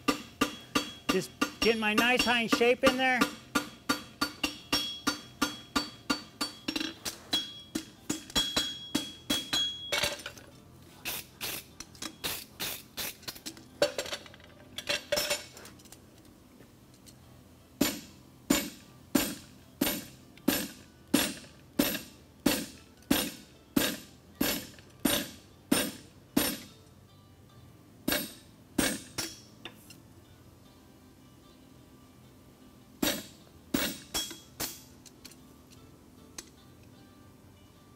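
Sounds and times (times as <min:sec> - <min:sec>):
hammer striking horseshoe on anvil: 0:00.0 - 0:10.3, 0:17.8 - 0:26.7, 0:28.1 - 0:29.8, 0:33.0 - 0:35.0.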